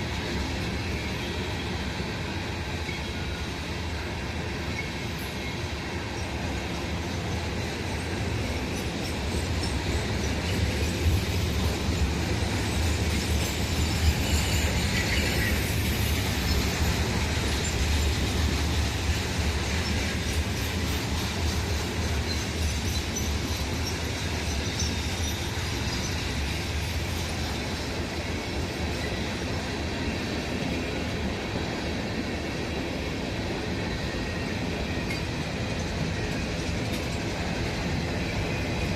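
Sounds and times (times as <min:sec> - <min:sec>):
freight train rumbling past: 0:00.0 - 0:38.9
wheel squeal: 0:08.0 - 0:29.4.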